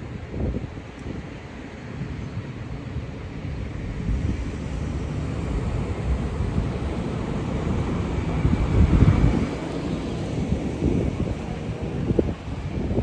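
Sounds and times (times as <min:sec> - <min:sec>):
wind buffeting microphone: 0:00.0 - 0:13.0
road vehicle rumble: 0:02.5 - 0:13.0.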